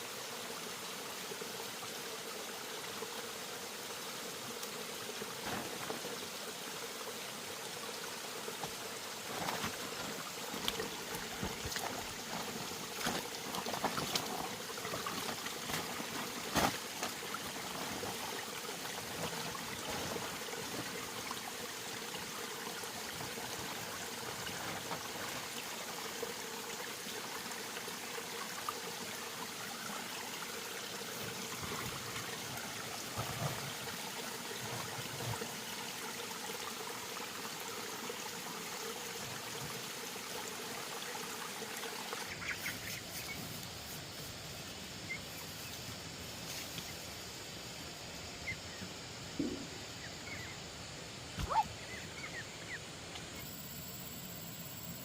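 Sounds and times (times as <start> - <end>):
water trickling: 2.9 - 43.2.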